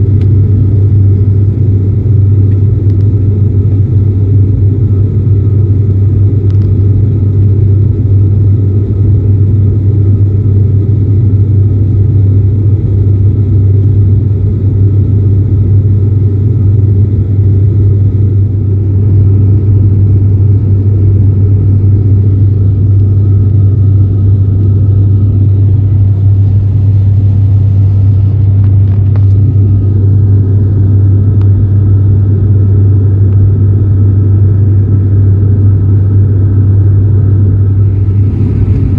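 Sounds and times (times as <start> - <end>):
propeller hum in airliner cabin: 0.0 - 38.9.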